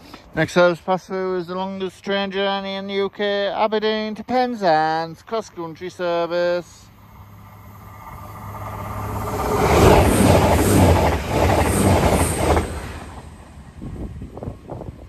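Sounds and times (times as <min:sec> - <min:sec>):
passenger train passing: 0:05.9 - 0:15.0.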